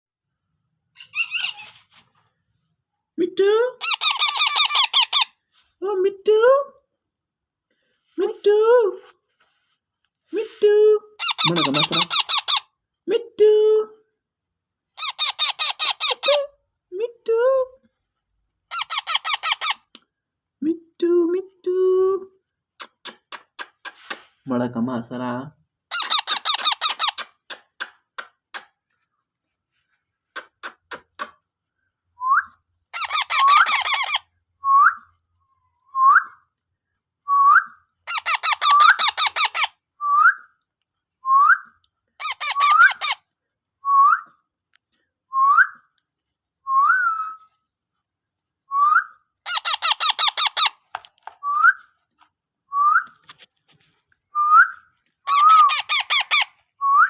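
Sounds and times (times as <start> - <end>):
whistled parrot chirps: 1.0 - 1.7, 32.2 - 35.1, 41.3 - 43.2, 46.7 - 47.5, 54.3 - 57.0
parrot screeching: 1.0 - 1.8, 3.8 - 5.4, 11.2 - 12.7, 15.0 - 16.4, 18.7 - 19.8, 25.9 - 27.2, 32.9 - 34.3, 38.1 - 39.8, 42.2 - 43.2, 49.4 - 50.8, 55.2 - 56.6.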